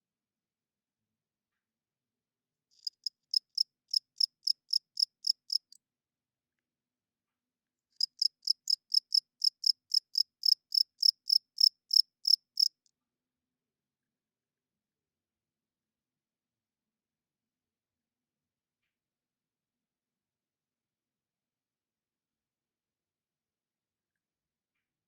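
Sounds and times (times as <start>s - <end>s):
cricket chirping: 2.8s - 5.8s, 8.0s - 12.8s.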